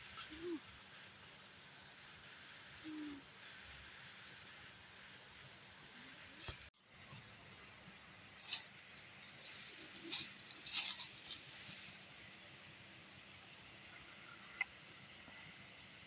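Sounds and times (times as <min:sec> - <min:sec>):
steady hiss: 0:00.0 - 0:06.7.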